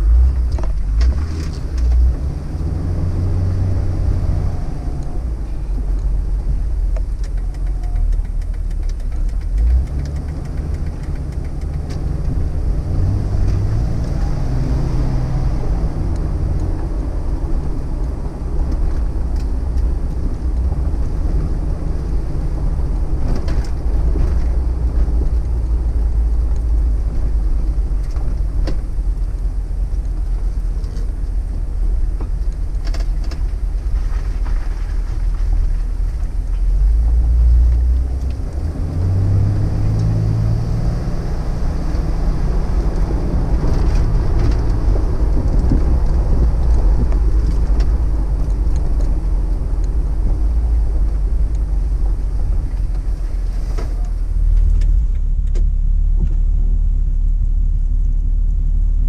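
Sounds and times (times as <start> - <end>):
car engine droning: 0.0 - 59.0
road rumble: 0.0 - 59.0
faint clicks: 6.9 - 12.4.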